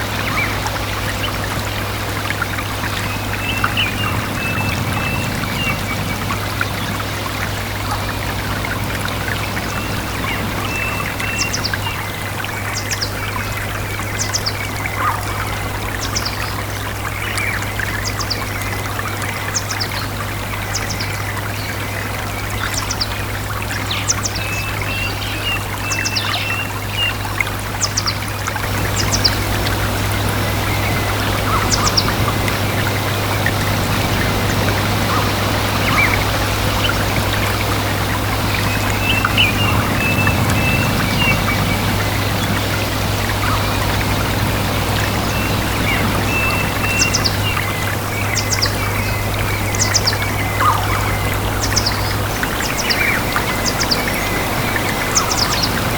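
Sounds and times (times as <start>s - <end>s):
small birds chirping: 0.0s - 15.2s, 27.8s - 55.9s
stream trickling: 0.0s - 55.9s.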